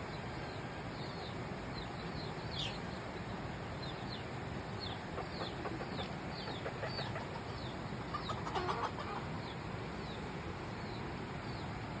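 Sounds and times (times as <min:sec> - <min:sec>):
chick peeping: 0:00.1 - 0:03.0, 0:03.8 - 0:11.7
chicken clucking: 0:04.9 - 0:09.6.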